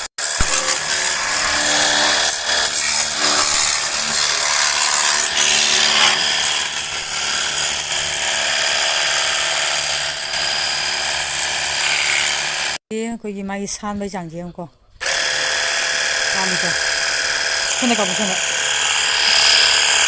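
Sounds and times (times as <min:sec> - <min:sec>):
small pump motor whirring: 0:00.0 - 0:12.8, 0:15.0 - 0:20.0
water spray hissing: 0:00.3 - 0:07.8, 0:11.6 - 0:12.7.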